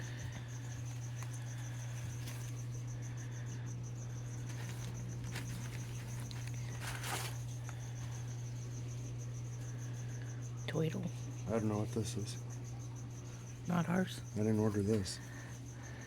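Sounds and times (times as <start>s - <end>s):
cricket chirping: 0.0s - 16.0s
steady low hum: 0.0s - 16.0s
plastic crinkling: 4.4s - 7.6s.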